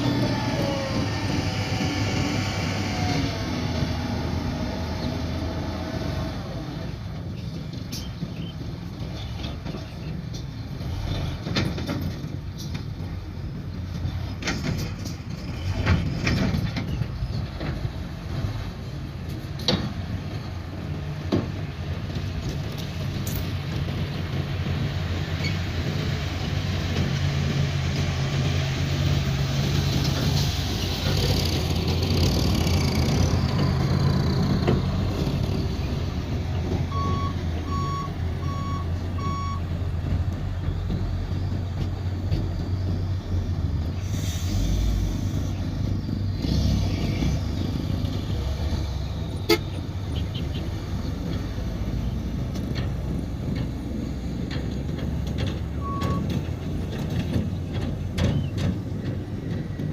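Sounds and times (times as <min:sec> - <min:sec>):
diesel truck engine running: 0:00.0 - 0:59.9
reversing alarm beeping: 0:36.9 - 0:39.7, 0:55.8 - 0:56.3.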